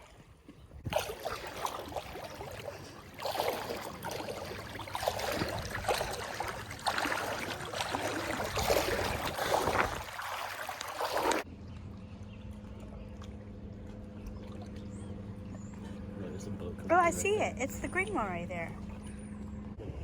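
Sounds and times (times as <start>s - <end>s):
shallow sea water splashing: 0.0s - 11.5s.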